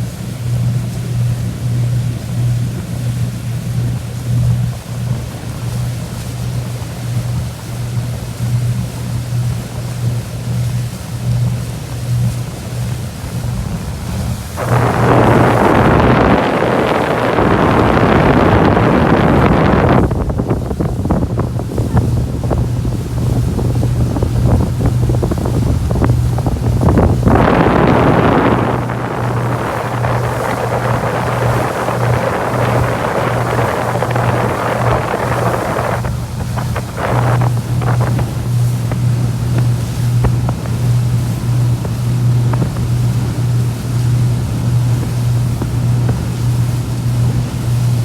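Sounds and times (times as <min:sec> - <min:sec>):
boat engine humming: 0:00.0 - 0:48.0
wind buffeting microphone: 0:11.4 - 0:48.0
water rushing past: 0:12.3 - 0:48.0.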